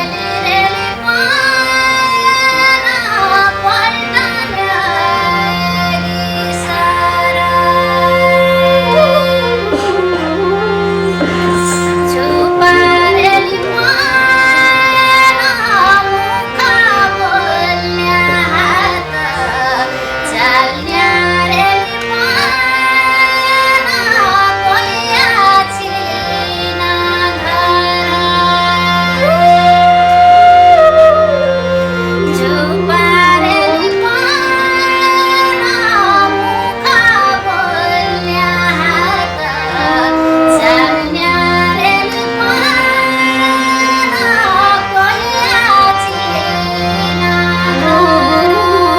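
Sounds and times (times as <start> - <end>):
folk song melody: 0.0 - 48.9
sustained low accompaniment: 0.0 - 48.9.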